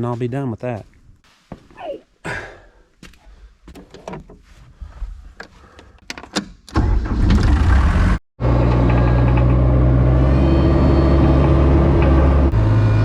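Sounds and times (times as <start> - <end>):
engine starting and running: 6.7 - 13.0.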